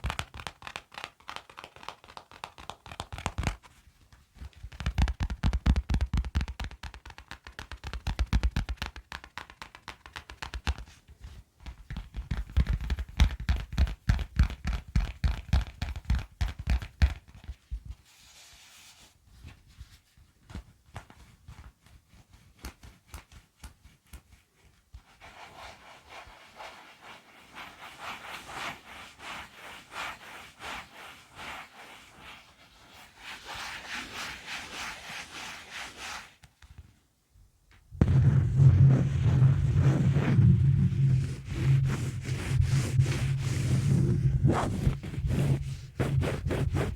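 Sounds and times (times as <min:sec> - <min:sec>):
low thuds: 0:37.9 - 0:46.5
fast even scratching: 0:38.0 - 0:46.9.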